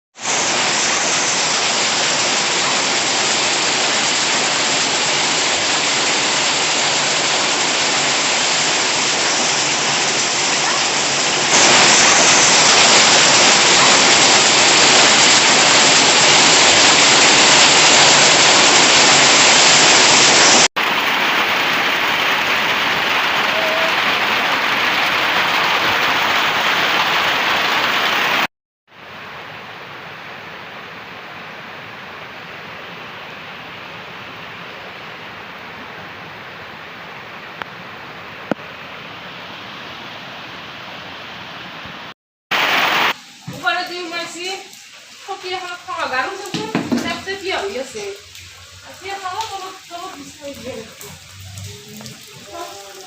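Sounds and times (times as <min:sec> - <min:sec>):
heavy rain and hail pelting: 0:00.2 - 0:28.5, 0:42.5 - 0:53.0.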